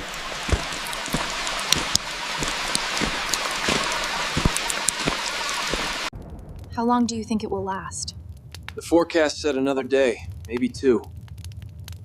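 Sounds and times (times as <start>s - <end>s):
raindrops tapping close by: 0.0s - 6.1s, 8.4s - 12.0s
steady rain hiss: 0.0s - 6.1s, 6.7s - 12.0s.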